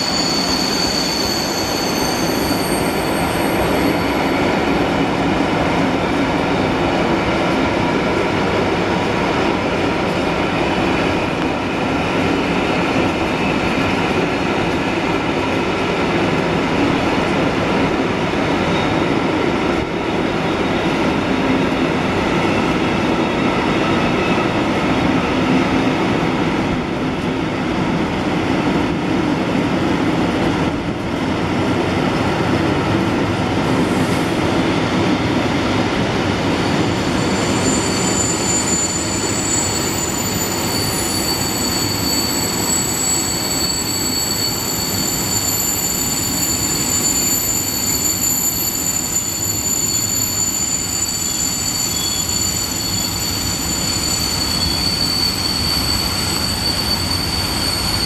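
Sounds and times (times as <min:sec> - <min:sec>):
high-pitched wheel squeal: 0:00.0 - 0:04.9, 0:36.7 - 0:58.0
train wheels rumbling on rails: 0:00.0 - 0:58.0.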